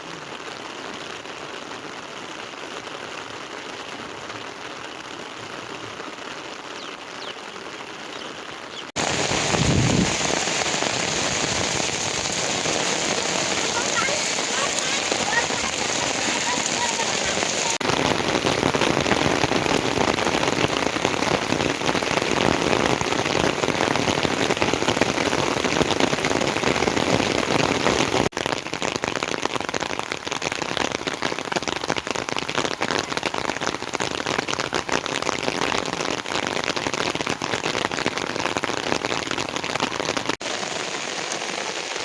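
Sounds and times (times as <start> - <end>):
heavy rain falling: 0.0 - 42.0.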